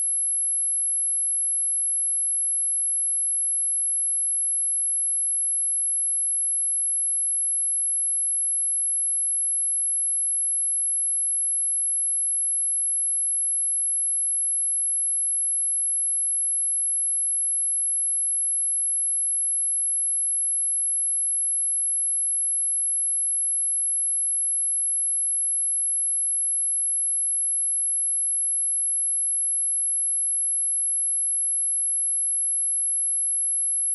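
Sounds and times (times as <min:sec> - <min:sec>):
high-pitched sine test tone: 0:00.0 - 0:33.9.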